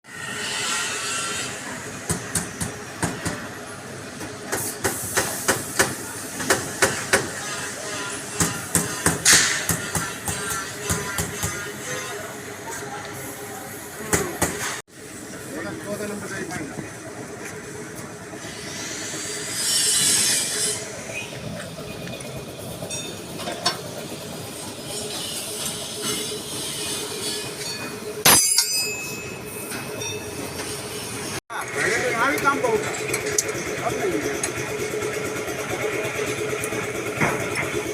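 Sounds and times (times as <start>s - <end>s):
metal scraping and squealing: 0.1s - 1.9s, 7.0s - 12.9s, 18.4s - 23.5s, 24.5s - 33.4s.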